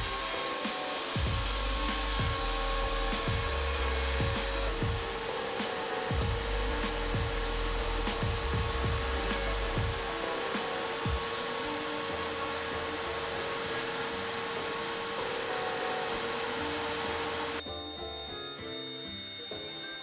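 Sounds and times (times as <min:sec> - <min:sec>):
router spindle whining: 0:00.0 - 0:20.0
low machine rumble: 0:01.2 - 0:05.2, 0:06.1 - 0:10.2.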